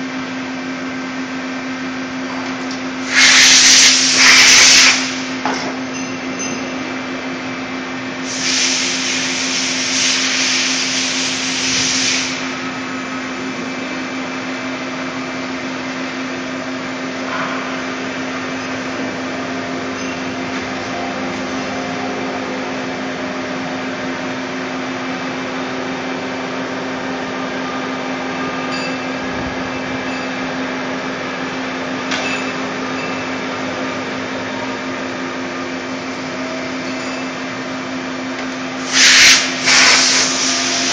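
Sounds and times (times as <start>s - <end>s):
loud hiss: 3.0s - 5.4s, 8.2s - 12.6s, 38.8s - 40.9s
lathe running hum: 4.8s - 40.9s.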